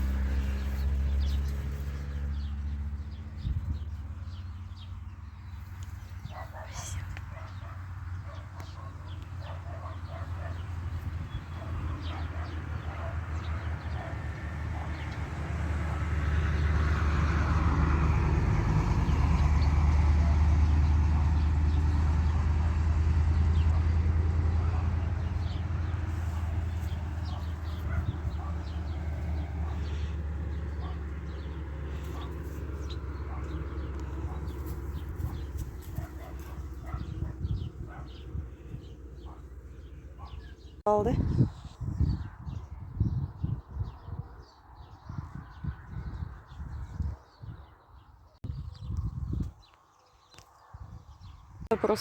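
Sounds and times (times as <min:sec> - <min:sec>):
vehicle engine passing by: 0:00.0 - 0:41.2
faint birds: 0:00.0 - 0:52.0.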